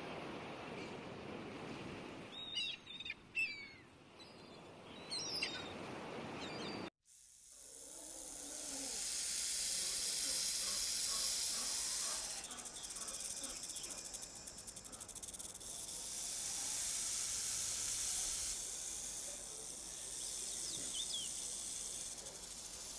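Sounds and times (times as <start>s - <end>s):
snake hissing: 7.1s - 22.9s
faint chirps: 7.5s - 22.9s.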